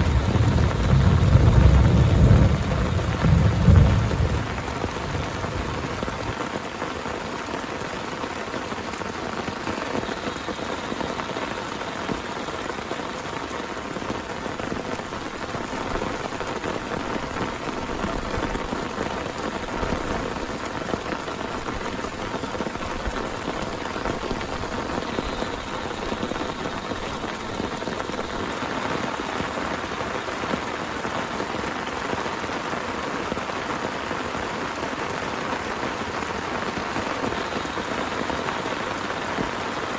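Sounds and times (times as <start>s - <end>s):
thunder rumble: 0.0s - 6.6s, 14.5s - 29.0s
heavy rain: 0.0s - 39.9s.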